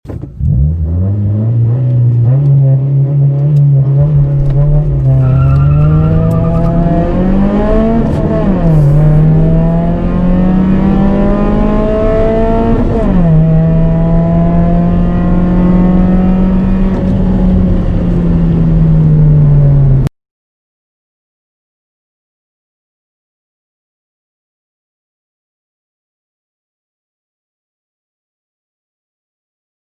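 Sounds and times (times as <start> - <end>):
car engine accelerating: 0.1 - 20.1.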